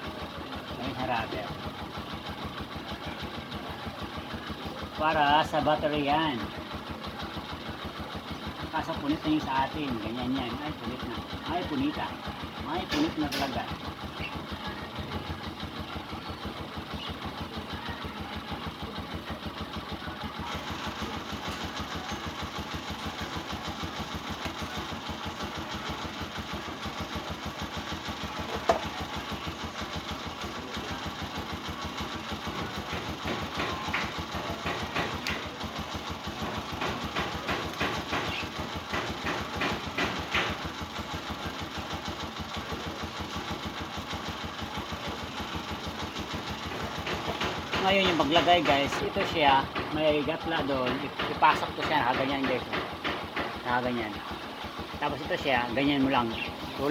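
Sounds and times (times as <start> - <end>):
motorcycle engine idling: 0.0 - 56.9
parts clicking and rattling: 20.5 - 56.9.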